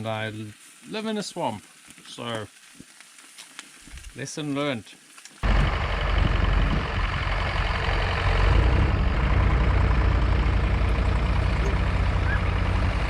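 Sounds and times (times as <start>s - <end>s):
tractor engine humming: 5.4s - 13.0s.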